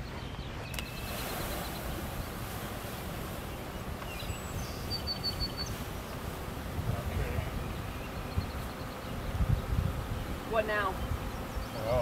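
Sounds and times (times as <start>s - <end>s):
bird chirping: 0.0s - 2.7s, 3.4s - 6.4s, 7.4s - 12.0s
wind rumble on microphone: 0.0s - 12.0s.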